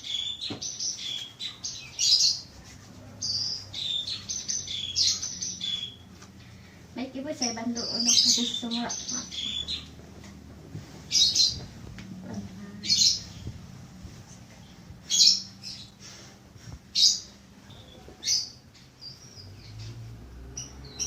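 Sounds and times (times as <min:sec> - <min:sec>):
bird chirping high calls: 0:00.0 - 0:02.5, 0:03.2 - 0:06.1, 0:07.4 - 0:10.0, 0:14.6 - 0:16.2
faint low hum: 0:02.6 - 0:18.2.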